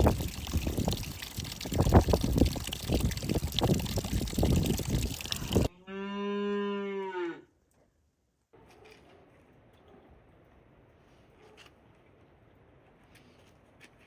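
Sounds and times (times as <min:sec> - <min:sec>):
cow mooing: 0:05.7 - 0:07.5.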